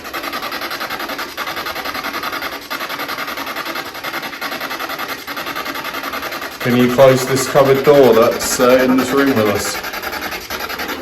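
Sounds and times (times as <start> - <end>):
pulsing radio static hiss: 5.2 - 11.0.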